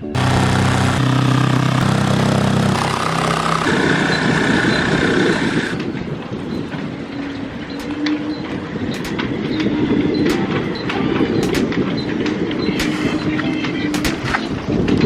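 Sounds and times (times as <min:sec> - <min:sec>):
engine running: 0:00.0 - 0:06.4.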